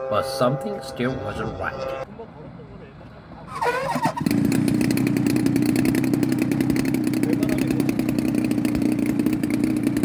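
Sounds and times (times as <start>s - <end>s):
model plane engine running: 4.2s - 10.0s.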